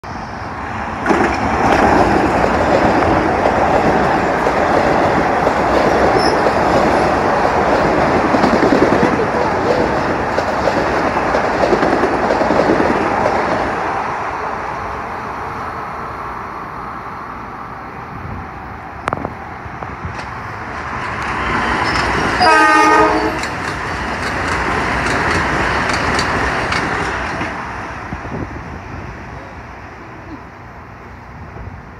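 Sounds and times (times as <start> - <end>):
train rumbling past: 0.0 - 31.9
train horn blast: 22.4 - 23.5.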